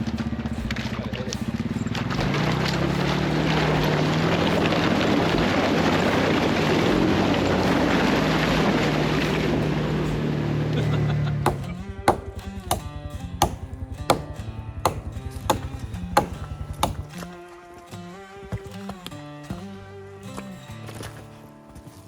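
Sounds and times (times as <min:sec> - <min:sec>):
vehicle engine hum: 0:00.0 - 0:18.5.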